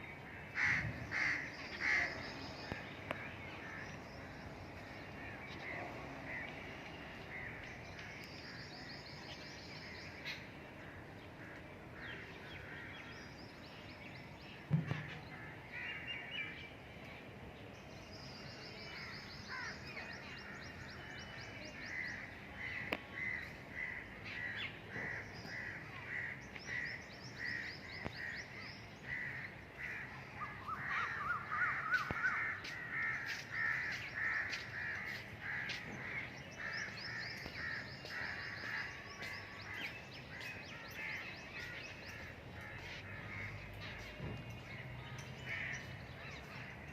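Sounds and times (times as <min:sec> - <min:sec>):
birds chattering trills: 0:00.0 - 0:16.8, 0:18.3 - 0:46.9
crows cawing: 0:00.3 - 0:02.3, 0:19.5 - 0:20.6, 0:29.0 - 0:44.0.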